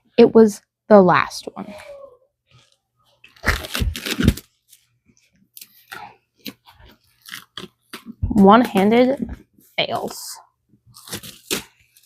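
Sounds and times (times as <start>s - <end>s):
wrapping crinkling: 2.6s - 9.0s, 10.9s - 12.0s
packaging tearing: 3.4s - 4.5s, 7.1s - 8.1s, 10.9s - 12.0s.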